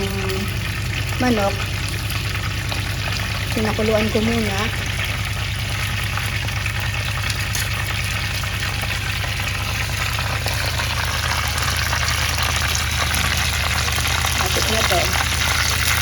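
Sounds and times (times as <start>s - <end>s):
chicken sizzling in hot oil: 0.0s - 16.0s
low hum: 0.0s - 16.0s.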